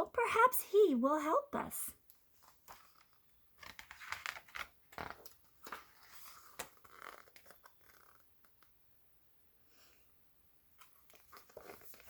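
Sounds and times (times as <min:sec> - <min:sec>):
paper pages rustling: 0:02.2 - 0:08.7, 0:10.8 - 0:12.0.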